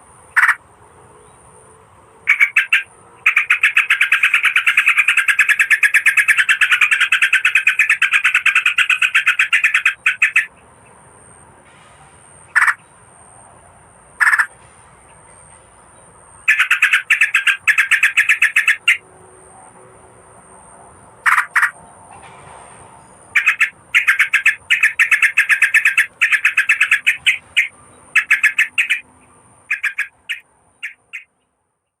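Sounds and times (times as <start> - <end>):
bulbul call chattering: 0.3 - 0.6, 2.3 - 10.5, 12.5 - 12.8, 14.2 - 14.5, 16.4 - 19.0, 21.2 - 21.8, 23.4 - 31.3.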